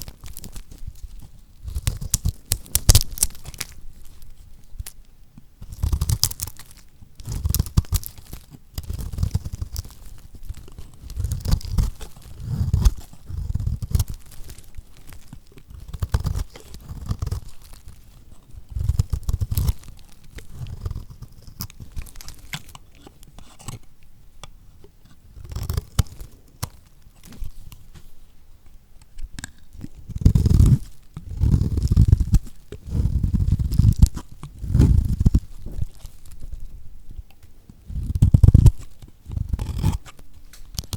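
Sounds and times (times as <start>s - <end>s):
knife crunching through soap: 0.0s - 5.0s, 5.6s - 27.9s, 29.2s - 36.7s, 37.8s - 40.9s.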